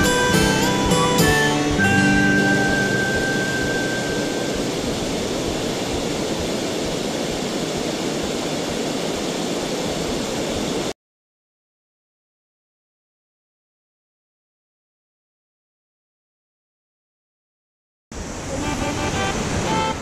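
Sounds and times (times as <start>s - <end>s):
music track: 0.0s - 5.2s, 18.5s - 20.0s
river water rushing: 0.0s - 10.9s, 18.2s - 20.0s.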